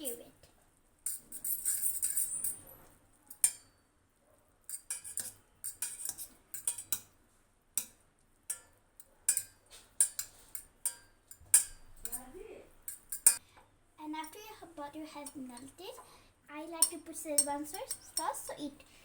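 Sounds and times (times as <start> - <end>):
utensil scraping a pan: 4.7 - 7.1.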